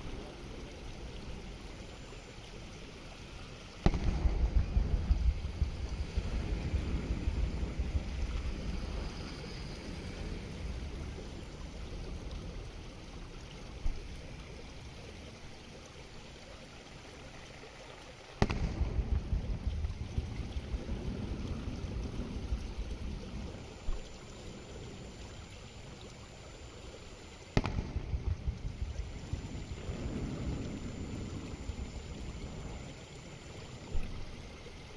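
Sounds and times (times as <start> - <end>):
faint launch thump: 3.8 - 5.4, 18.4 - 19.5, 27.6 - 28.4
firework shells bursting: 3.8 - 6.3, 18.4 - 19.4, 27.5 - 29.4
steady low rumble: 3.8 - 14.6, 18.4 - 26.1, 27.6 - 34.9.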